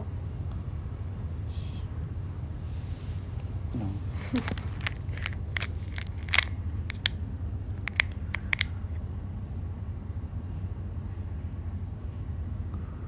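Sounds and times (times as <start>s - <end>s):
sharp clicks and taps: 4.2s - 8.8s.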